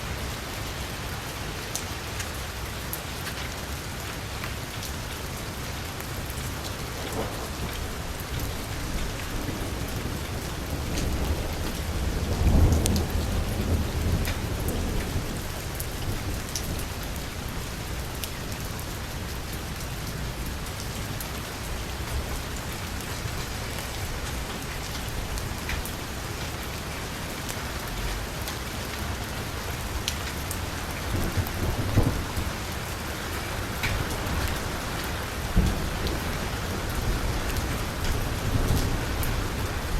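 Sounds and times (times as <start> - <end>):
heavy rain on car roof: 0.0 - 39.9
thunder rumble: 6.2 - 26.4, 29.0 - 39.9.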